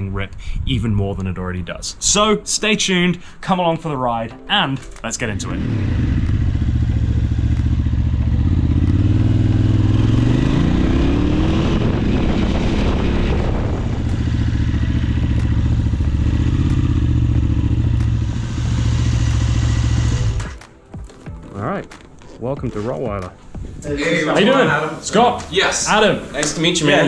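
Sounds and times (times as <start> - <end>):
motorcycle engine running: 5.3 - 20.6.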